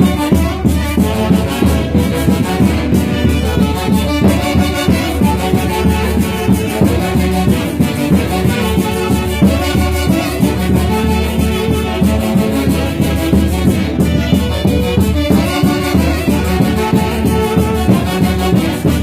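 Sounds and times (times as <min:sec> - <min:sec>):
brass band music with beat: 0:00.0 - 0:19.0.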